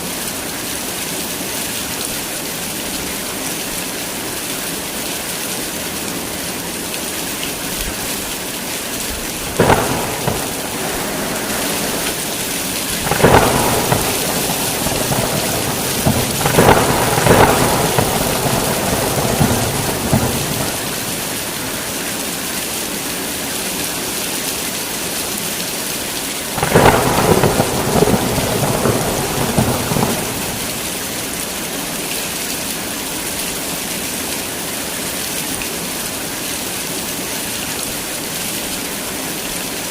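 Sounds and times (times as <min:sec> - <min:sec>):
heavy rain falling: 0:00.0 - 0:39.9
thunder: 0:09.4 - 0:22.0, 0:26.6 - 0:31.4.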